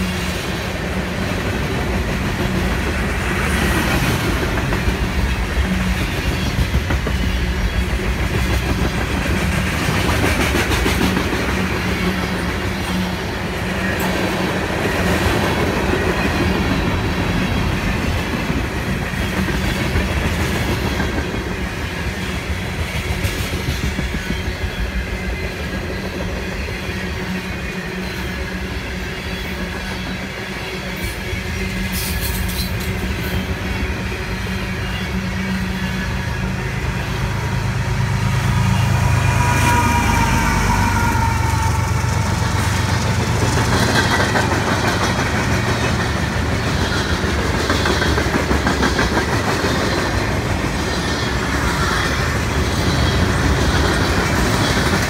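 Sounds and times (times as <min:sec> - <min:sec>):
diesel locomotive engine drone: 0:00.0 - 0:55.0
wheels clicking over rail joints: 0:42.2 - 0:55.0.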